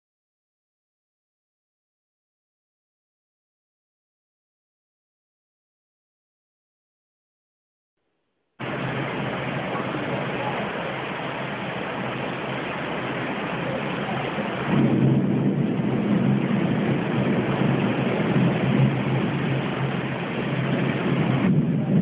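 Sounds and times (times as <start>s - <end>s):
heavy rain: 8.6s - 22.0s
thunder rumble: 8.6s - 22.0s.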